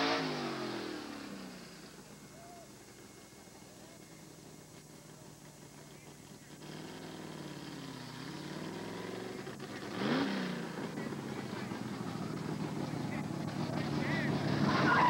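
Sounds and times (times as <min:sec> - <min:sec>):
drag car engine revving: 0:00.0 - 0:15.0.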